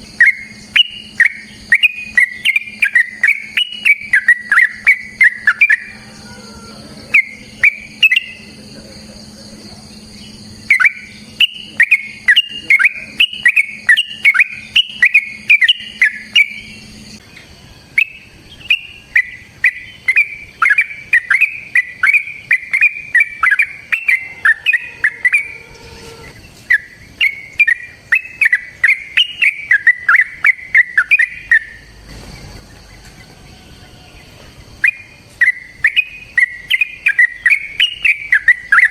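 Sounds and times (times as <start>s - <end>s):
bulbul singing bubbly chirps: 0.0s - 6.4s, 7.0s - 33.0s, 34.6s - 38.9s.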